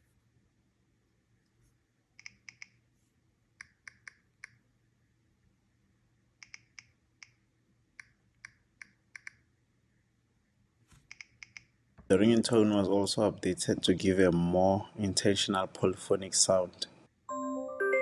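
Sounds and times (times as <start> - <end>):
keyboard typing clicks: 6.4 - 7.4, 11.0 - 11.8.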